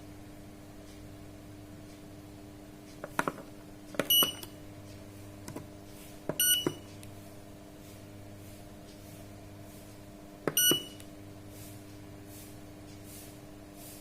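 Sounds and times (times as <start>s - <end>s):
steady low hum: 0.0s - 14.0s
keypad button clicks: 4.0s - 4.5s, 6.3s - 6.9s, 10.5s - 11.0s
short high beeps: 6.4s - 6.8s, 10.6s - 11.0s.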